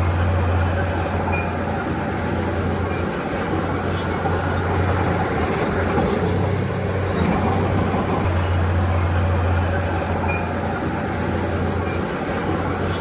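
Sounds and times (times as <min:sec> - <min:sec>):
bulldozer diesel engine running: 0:00.0 - 0:13.0
faint short high squeaks: 0:07.0 - 0:13.0.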